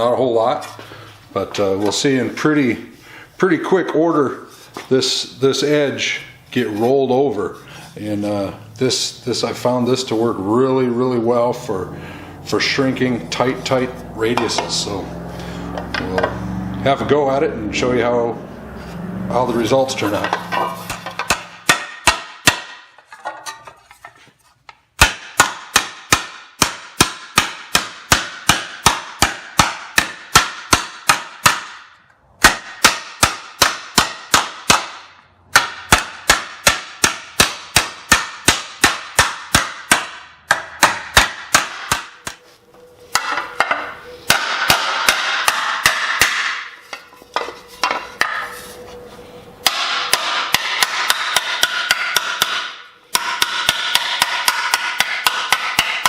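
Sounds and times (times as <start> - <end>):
mallet striking sheet metal: 20.0 - 23.8, 25.0 - 42.4, 43.1 - 48.6, 49.6 - 56.0.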